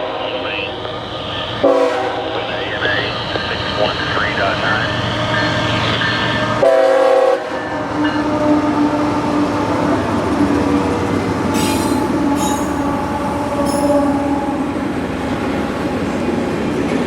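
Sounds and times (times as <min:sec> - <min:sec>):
freight train rolling by: 0:00.0 - 0:17.0
locomotive horn blast: 0:01.6 - 0:02.4, 0:06.6 - 0:09.2
wheel squeal on rail: 0:11.6 - 0:14.6.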